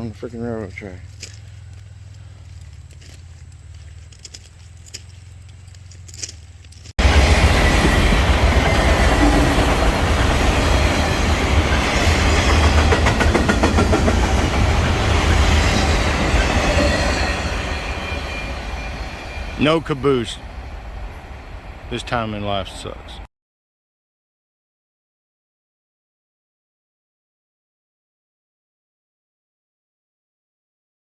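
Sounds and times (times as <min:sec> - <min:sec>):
train wheels clicking on rail joints: 0:00.3 - 0:21.9
freight train rumbling past: 0:07.0 - 0:23.3.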